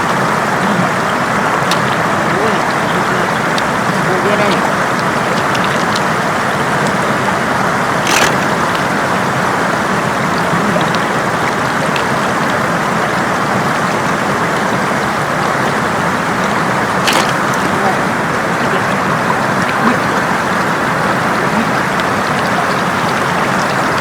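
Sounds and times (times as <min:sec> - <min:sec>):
faint clicks: 0:00.0 - 0:12.6
floodwater rushing over road: 0:00.0 - 0:24.0.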